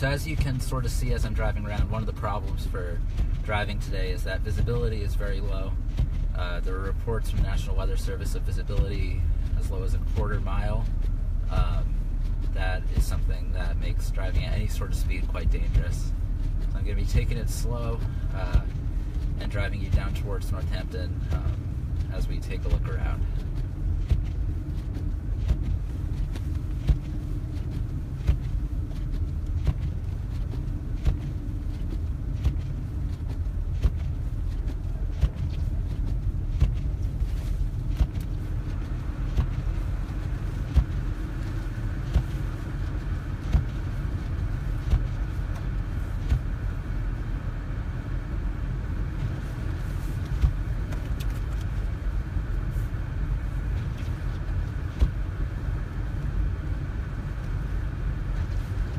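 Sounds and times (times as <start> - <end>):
car engine and tyres rumbling: 0.0 - 58.9
windshield wiper knocks: 5.8 - 6.3, 22.4 - 46.6, 50.2 - 51.8.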